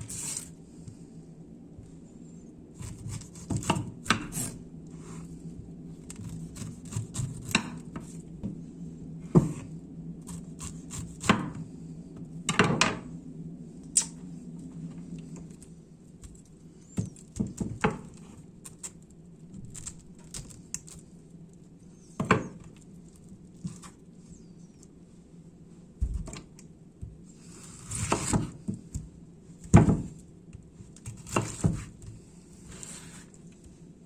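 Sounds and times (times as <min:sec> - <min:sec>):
rustling scrape: 0:00.0 - 0:00.8, 0:02.3 - 0:07.4, 0:30.8 - 0:34.0.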